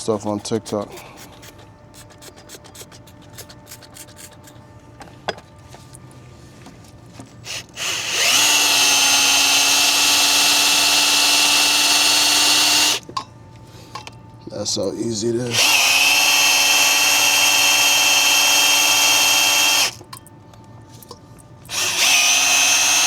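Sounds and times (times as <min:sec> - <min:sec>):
power drill polishing: 0:07.5 - 0:13.0, 0:15.5 - 0:20.0, 0:21.7 - 0:23.0.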